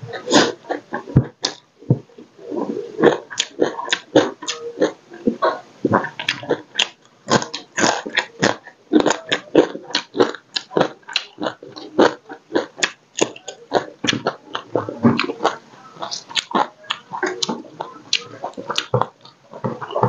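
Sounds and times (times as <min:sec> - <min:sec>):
man chewing crunchy food: 0:00.0 - 0:20.0.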